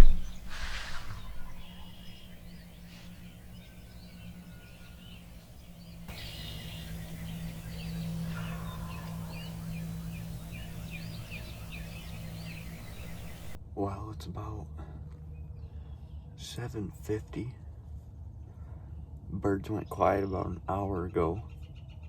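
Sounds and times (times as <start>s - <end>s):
songbirds chirping: 0.0s - 13.6s
steady low hum: 0.0s - 13.6s.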